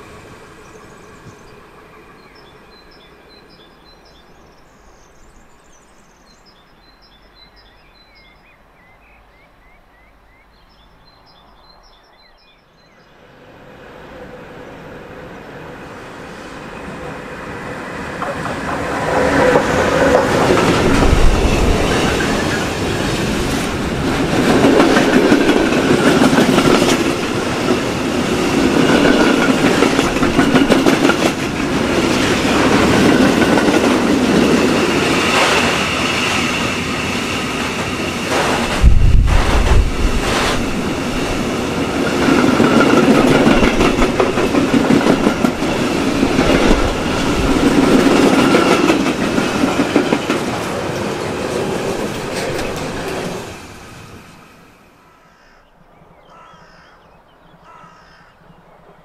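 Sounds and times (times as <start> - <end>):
freight train passing: 0.0 - 59.0
wheels clattering on rails: 18.1 - 53.6.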